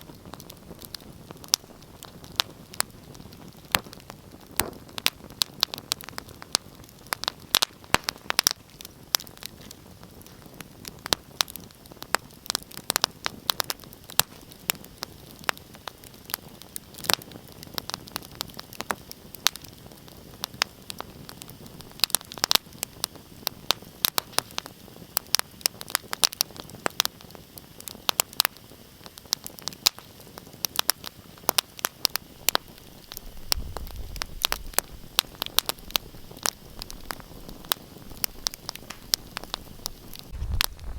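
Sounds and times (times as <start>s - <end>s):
wood fire crackling: 0.0s - 40.9s
low rumble: 40.3s - 40.9s.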